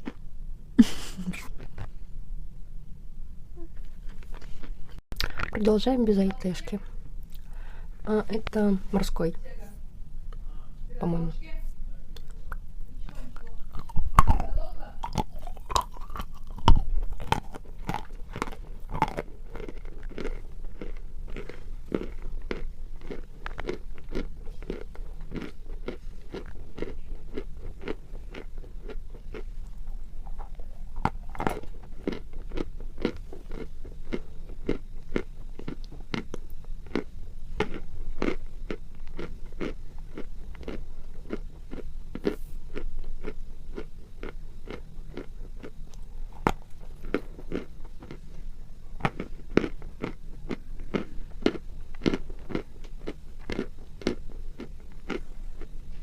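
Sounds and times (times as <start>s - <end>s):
chewing crunches: 0.0s - 0.2s, 1.4s - 2.0s, 7.2s - 7.6s, 12.2s - 48.4s, 49.0s - 56.0s.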